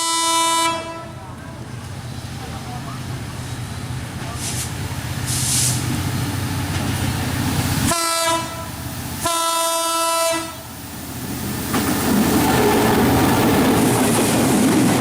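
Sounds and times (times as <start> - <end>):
train horn blasts: 0.0 - 1.2, 7.9 - 10.7
train rumble and wheel clatter: 0.0 - 15.0.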